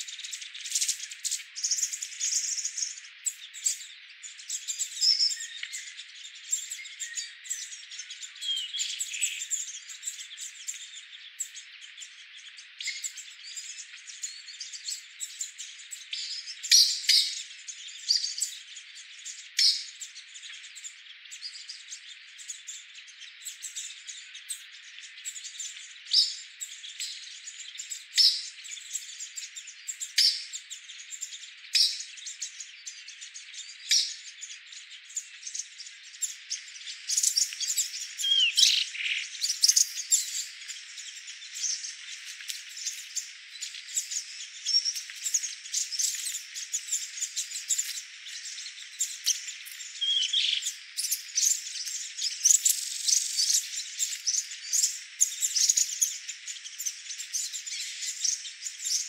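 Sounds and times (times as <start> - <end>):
wild birds chirping: 0.0 - 59.0.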